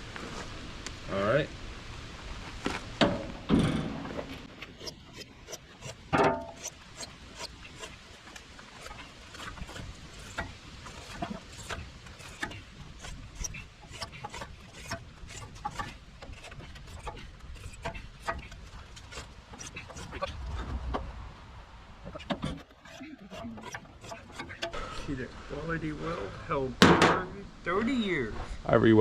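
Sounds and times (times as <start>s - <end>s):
file scraping metal blade: 4.6s - 20.5s, 22.1s - 24.8s.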